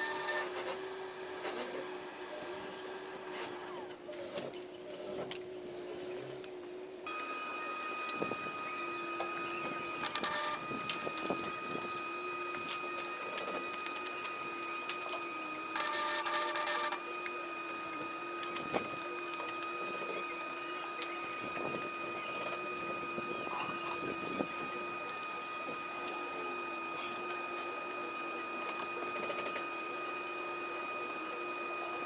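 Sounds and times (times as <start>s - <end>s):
welder high whine: 0.0s - 32.0s
arc welding crackling: 7.1s - 30.6s.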